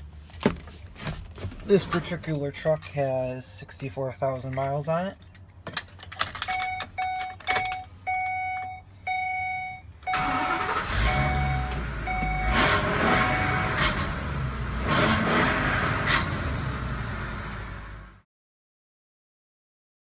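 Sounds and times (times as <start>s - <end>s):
key clicking in ignition: 4.4s - 8.8s
truck engine cranking and idling: 5.2s - 18.2s
dashboard warning chime dinging: 6.5s - 13.8s.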